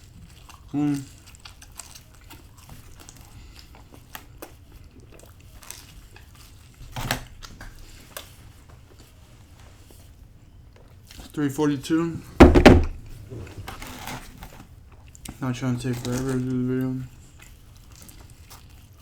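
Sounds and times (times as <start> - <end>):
chewing and biting pizza: 0.0 - 8.4, 17.1 - 19.0.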